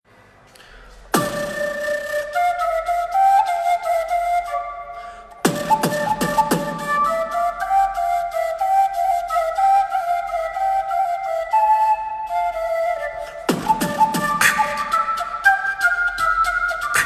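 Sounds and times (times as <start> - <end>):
light percussion: 0.9 - 2.6, 5.4 - 7.3, 13.5 - 17.0
flute melody: 1.1 - 17.0.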